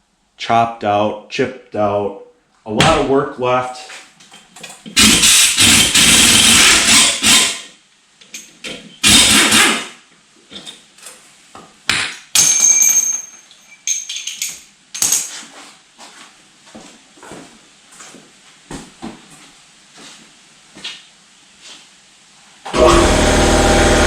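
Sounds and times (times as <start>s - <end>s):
metal clinks: 12.4s - 15.3s.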